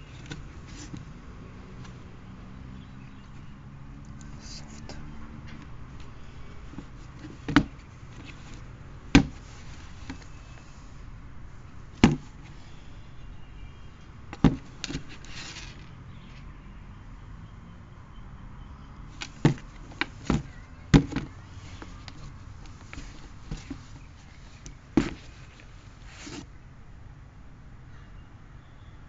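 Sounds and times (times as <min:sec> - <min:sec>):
box rustling: 0:00.0 - 0:01.1, 0:05.9 - 0:10.8, 0:12.0 - 0:12.8, 0:14.4 - 0:15.9, 0:19.1 - 0:26.5
knocks and taps of shoes: 0:06.8 - 0:08.4, 0:09.1 - 0:09.5, 0:12.0 - 0:12.5, 0:14.3 - 0:15.2, 0:19.2 - 0:25.4.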